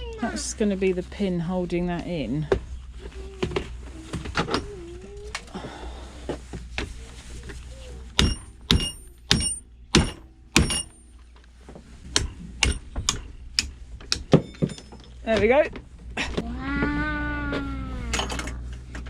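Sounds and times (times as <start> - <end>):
hammer striking metal: 8.2 - 11.1, 12.2 - 13.2.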